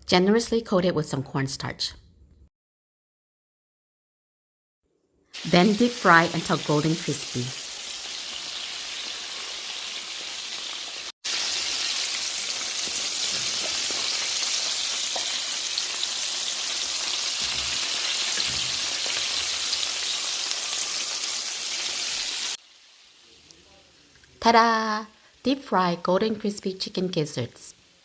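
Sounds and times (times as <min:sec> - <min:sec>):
deep frying sizzle and crackle: 0:05.4 - 0:23.6.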